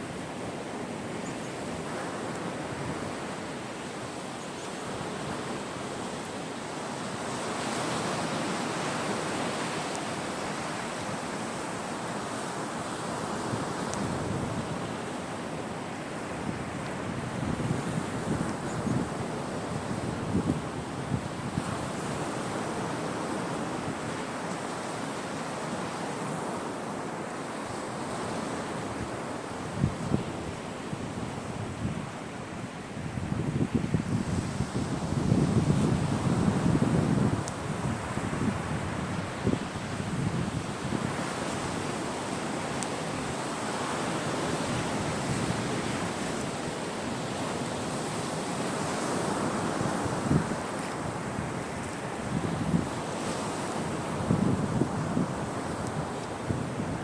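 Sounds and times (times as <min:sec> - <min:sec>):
sea waves washing onto shore: 0:00.0 - 0:57.0
wind on the microphone: 0:13.2 - 0:15.2, 0:16.1 - 0:24.8, 0:27.7 - 0:57.0.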